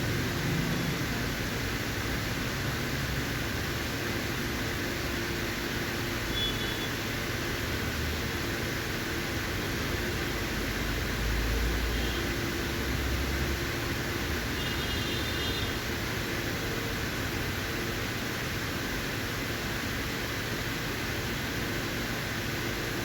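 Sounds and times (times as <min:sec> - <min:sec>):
air conditioning hiss and hum: 0:00.0 - 0:23.0.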